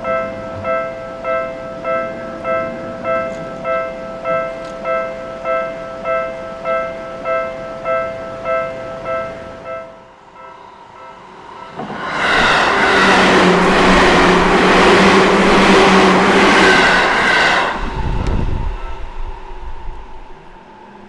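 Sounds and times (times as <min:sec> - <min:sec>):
level-crossing bell: 0:00.0 - 0:17.8
wheel and rail noise: 0:11.3 - 0:21.0
train motor hum: 0:11.8 - 0:21.0.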